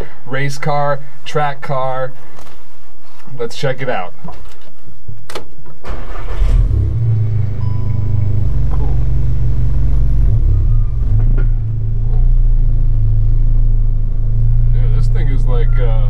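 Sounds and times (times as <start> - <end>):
car engine starting and idling: 5.8 - 16.0.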